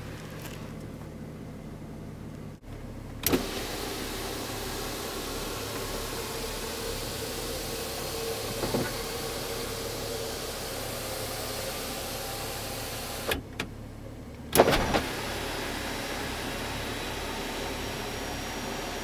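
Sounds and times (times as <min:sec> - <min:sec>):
electric motor humming: 0:03.3 - 0:13.3.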